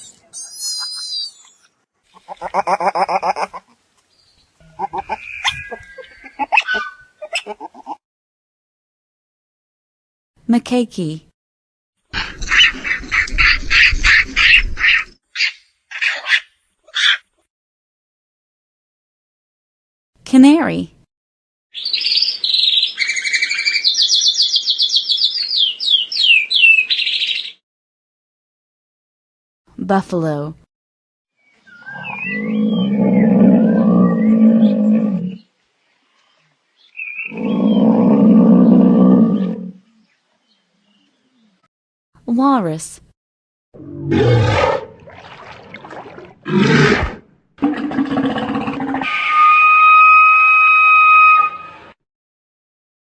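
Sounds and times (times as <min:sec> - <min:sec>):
walrus bellowing: 0:31.8 - 0:35.4, 0:37.2 - 0:39.8, 0:43.8 - 0:44.9, 0:46.4 - 0:49.6.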